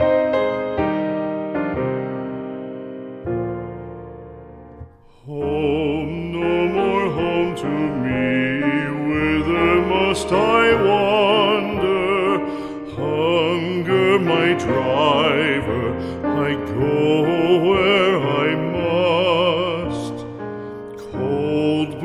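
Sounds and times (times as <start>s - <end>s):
piano notes: 0.0s - 22.0s
person singing a ballad: 4.8s - 22.0s.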